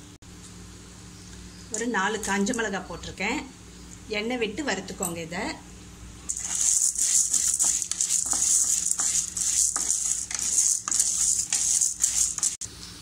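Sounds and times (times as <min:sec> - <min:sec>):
spatula scraping metal pan: 0:06.3 - 0:12.6
food sizzling in hot oil: 0:06.3 - 0:12.7.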